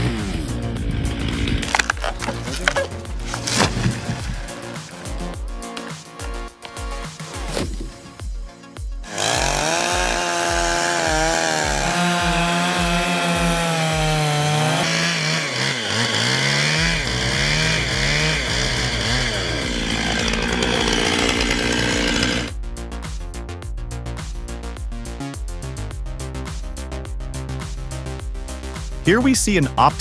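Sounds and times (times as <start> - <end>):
engine-driven machine cutting wood: 0.0 - 4.4, 9.1 - 22.5
music with drum beat: 0.0 - 14.7, 16.8 - 30.0.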